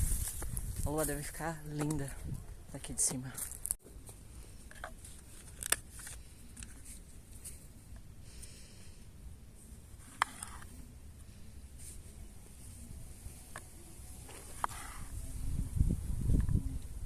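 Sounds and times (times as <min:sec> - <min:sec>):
small objects clicking and rustling: 0:04.6 - 0:07.6.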